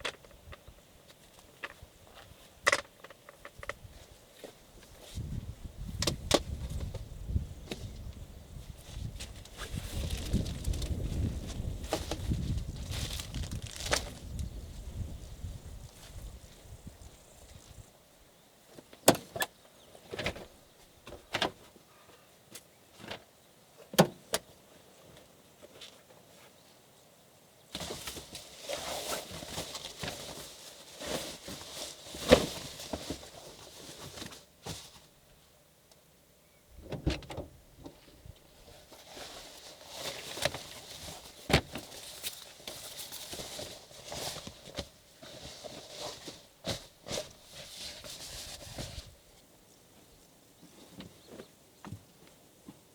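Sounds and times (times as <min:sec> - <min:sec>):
rustling and handling noise: 0:06.3 - 0:17.9, 0:27.7 - 0:35.3, 0:37.9 - 0:52.8.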